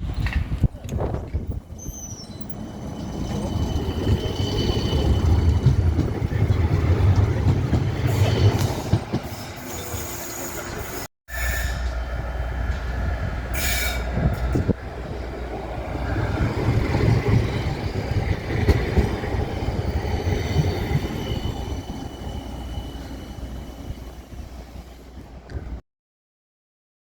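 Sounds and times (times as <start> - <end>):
tram rumbling: 0.0 - 25.8
wheels squealing: 1.5 - 7.3.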